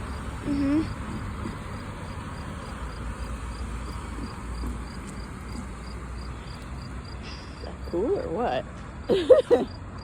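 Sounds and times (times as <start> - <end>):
insect chirping: 0.0 - 8.0.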